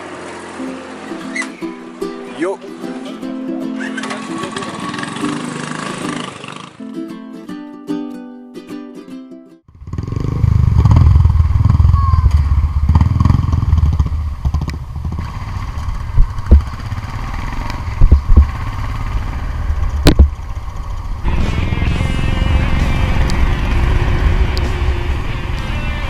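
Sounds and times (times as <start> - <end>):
motorcycle engine rumble: 2.8 - 6.8, 9.7 - 26.0
sharp thumps: 16.1 - 16.9, 17.7 - 18.7, 19.9 - 20.6.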